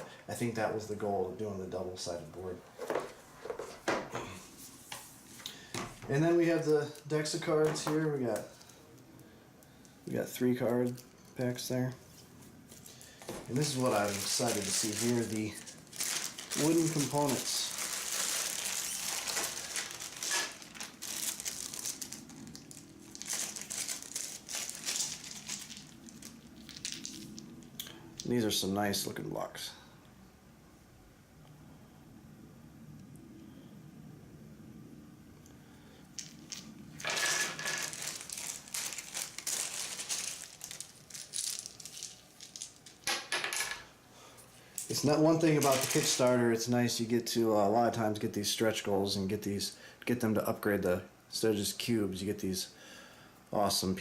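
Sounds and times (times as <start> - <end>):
plastic packaging crinkling: 12.7 - 27.8, 36.2 - 43.1, 44.8 - 46.6
game pieces rattling in plastic bag: 13.5 - 27.4, 36.2 - 43.8, 45.3 - 46.4.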